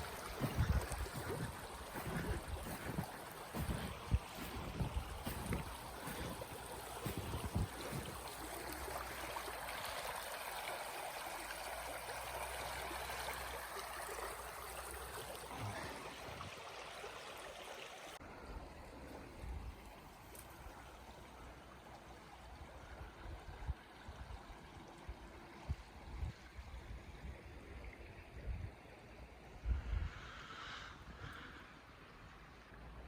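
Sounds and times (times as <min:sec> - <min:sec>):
stream babbling: 0:00.0 - 0:26.0.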